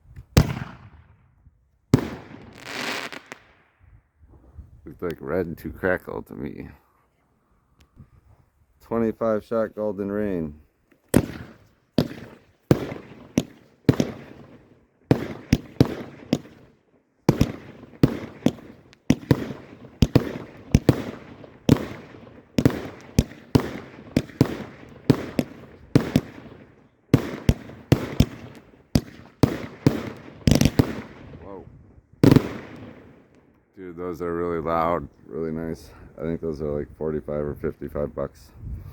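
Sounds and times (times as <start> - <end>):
firework bangs: 0.4 - 1.2, 1.9 - 3.6, 11.1 - 31.4, 32.2 - 33.4.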